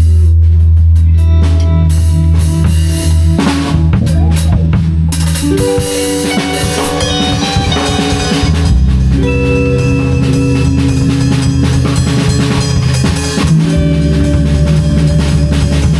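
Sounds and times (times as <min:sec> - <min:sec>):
drum kit playing: 0:00.0 - 0:15.9
sustained bass notes: 0:00.0 - 0:15.9
held melodic notes: 0:05.1 - 0:15.9.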